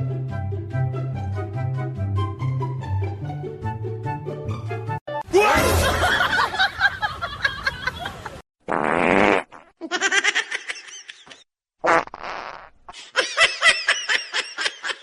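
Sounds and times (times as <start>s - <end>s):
buzzy fart-like noises: 11.8s - 12.8s.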